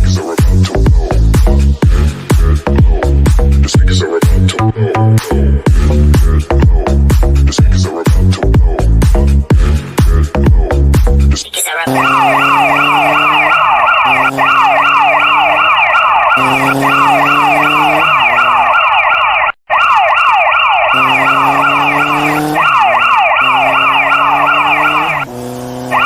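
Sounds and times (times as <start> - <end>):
electronic siren-like wail: 11.8 - 26.0.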